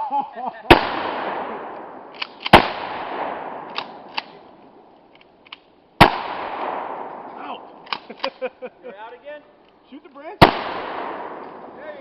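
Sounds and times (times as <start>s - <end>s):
shotgun blasts with echo: 0.7s - 4.4s, 6.0s - 8.2s, 10.4s - 12.0s.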